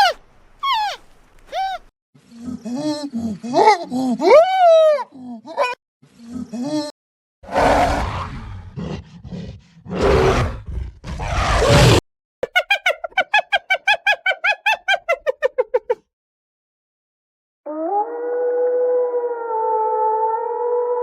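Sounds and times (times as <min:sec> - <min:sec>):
deep roar-like animal calls: 0:07.4 - 0:12.0.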